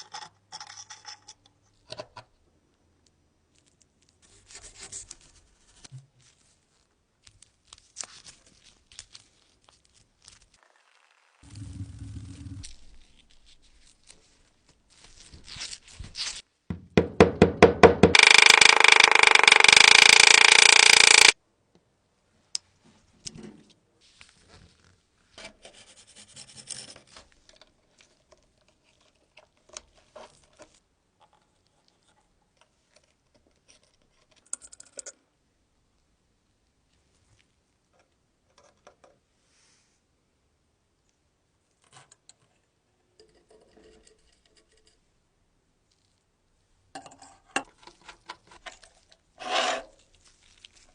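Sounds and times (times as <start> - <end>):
scraping and tapping on metal: 43.2 - 45.1.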